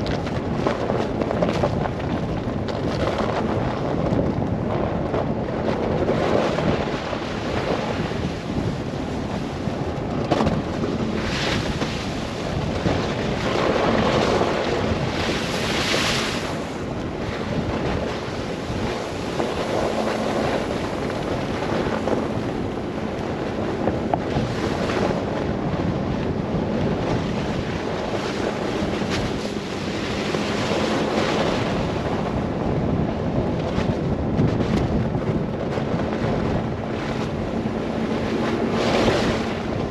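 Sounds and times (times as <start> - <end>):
blizzard wind gusting: 0.0 - 39.9.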